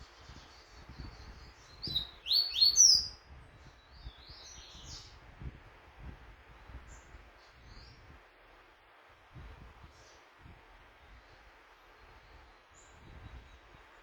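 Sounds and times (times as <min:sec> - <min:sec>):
bird singing high quick notes: 0:01.8 - 0:03.1.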